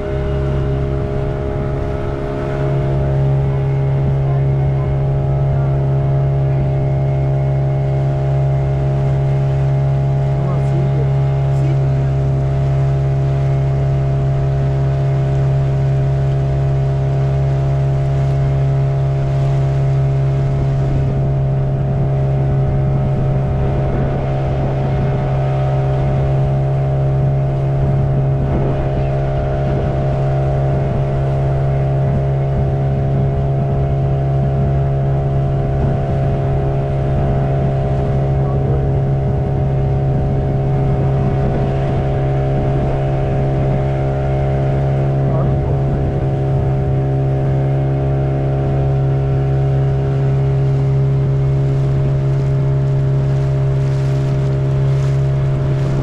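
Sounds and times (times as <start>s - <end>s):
motorboat engine running: 0.0s - 56.0s.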